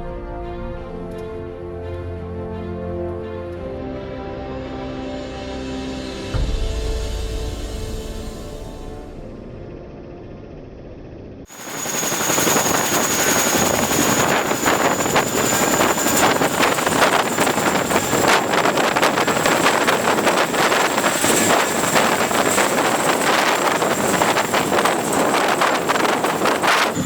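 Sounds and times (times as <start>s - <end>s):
helicopter whine: 0.0s - 27.0s
helicopter rotor chopping: 6.4s - 27.0s.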